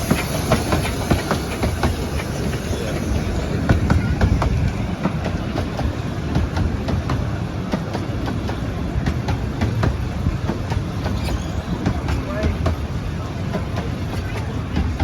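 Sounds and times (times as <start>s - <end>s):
miniature train rumbling: 0.0s - 15.0s
wheels clicking over rail joints: 0.0s - 15.0s.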